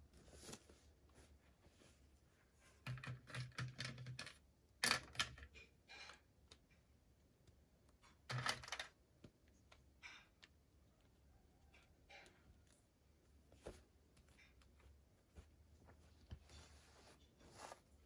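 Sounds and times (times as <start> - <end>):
small clicks and taps: 2.9 - 12.8.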